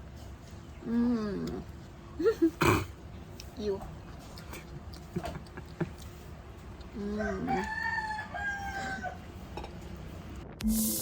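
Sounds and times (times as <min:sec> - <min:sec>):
rooster crowing: 0:07.0 - 0:09.4.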